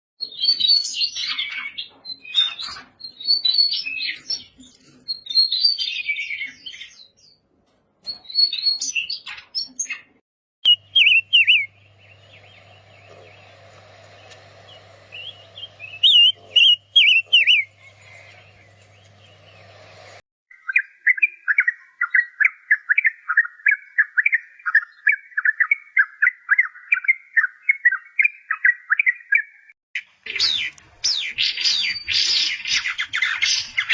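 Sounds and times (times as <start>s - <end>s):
bird calls and song: 0.2s - 33.9s
steady low hum: 10.7s - 20.2s.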